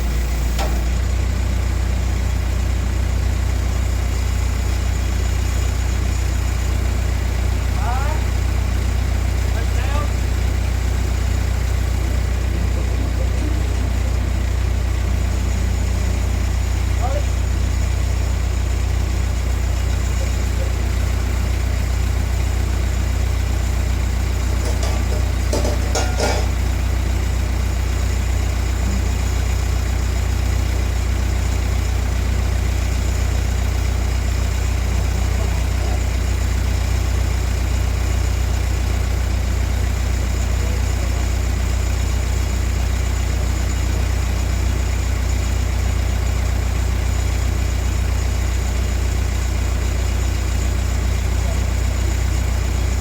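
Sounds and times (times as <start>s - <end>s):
low mechanical drone: 0.0s - 2.9s, 9.8s - 37.5s
clinks: 24.4s - 27.0s.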